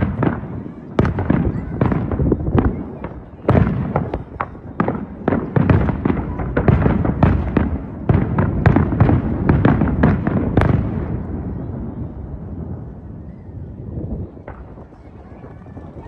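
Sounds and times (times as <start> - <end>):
fireworks bangs with booming echoes: 0.0 - 16.0.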